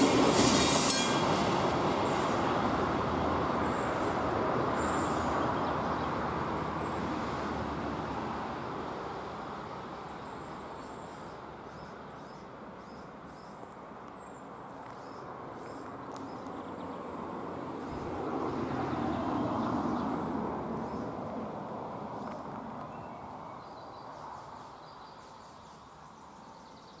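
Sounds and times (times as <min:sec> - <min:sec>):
passing train rumble: 0:00.0 - 0:14.0, 0:14.7 - 0:24.6
traffic noise: 0:00.0 - 0:27.0.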